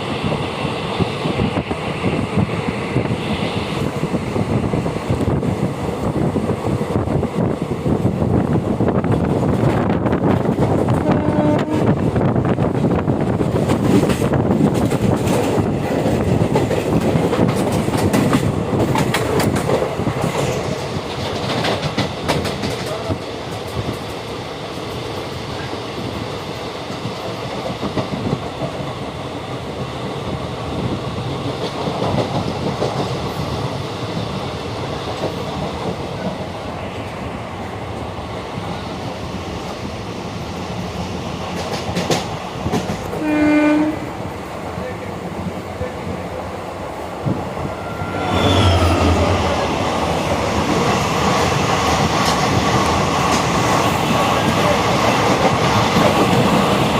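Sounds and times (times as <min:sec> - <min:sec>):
train rumbling on rails: 0:00.0 - 0:56.9
wheels clicking over rail joints: 0:13.4 - 0:24.2
short pitched tone: 0:47.6 - 0:49.8.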